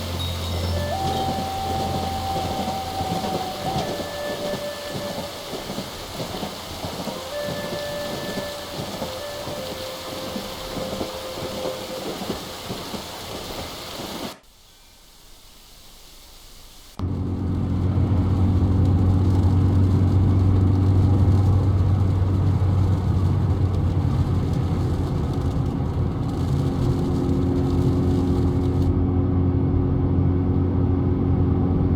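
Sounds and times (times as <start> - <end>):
long held tones: 0.0 - 13.6
thunder rumble: 0.0 - 14.4, 17.0 - 29.0
faint hiss: 0.0 - 28.9
rain hiss: 0.0 - 28.9.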